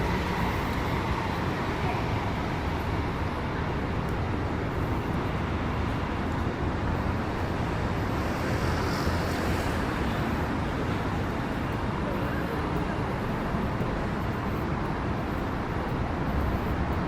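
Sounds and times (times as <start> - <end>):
road traffic rumble: 0.0 - 17.0
tyres hissing on wet road: 7.4 - 12.8.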